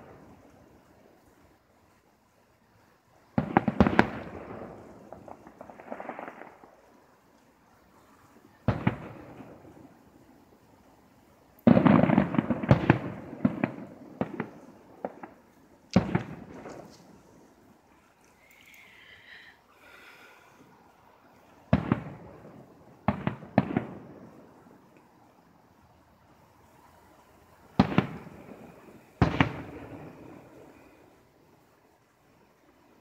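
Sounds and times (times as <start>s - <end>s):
firework shells bursting: 3.3s - 10.6s, 11.5s - 25.2s, 27.3s - 31.2s.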